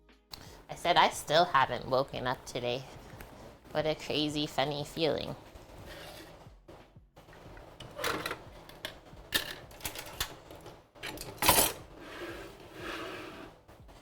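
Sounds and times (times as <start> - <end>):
kitchen items clacking and knocking: 1.2 - 14.0.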